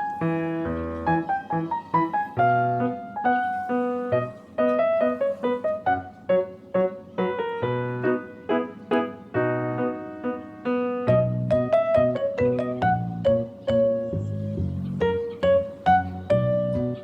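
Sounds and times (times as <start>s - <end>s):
keyboard tune over bass line: 11.0s - 17.0s.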